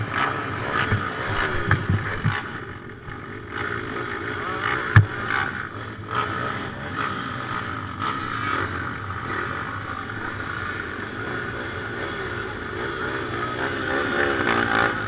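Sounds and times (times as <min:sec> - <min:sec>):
motocross bike engine revving: 0:00.0 - 0:15.0
wind on microphone: 0:00.8 - 0:02.7.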